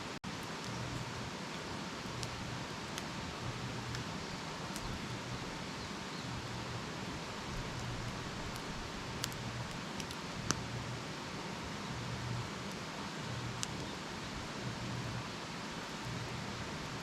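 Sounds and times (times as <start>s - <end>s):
campfire hissing: 0.0s - 17.0s
wood popping: 7.5s - 10.6s.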